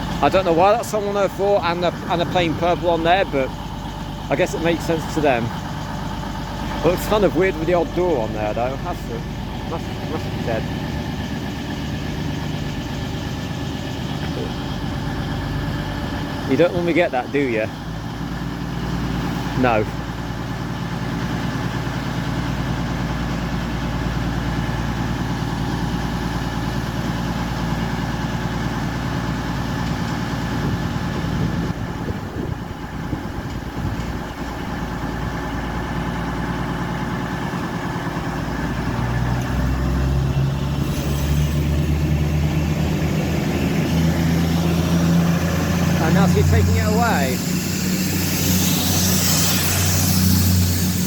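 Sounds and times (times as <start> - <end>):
diesel engines revving as train departs: 0.0 - 51.0
diesel train engine idling: 0.0 - 51.0.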